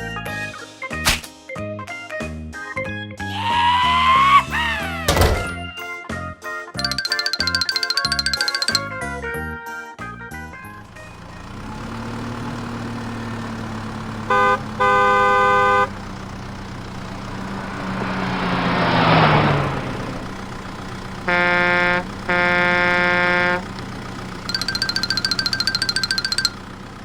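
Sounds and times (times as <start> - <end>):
horn honks: 14.2 - 16.2, 20.2 - 26.5
cartoon engine hum: 24.4 - 26.6.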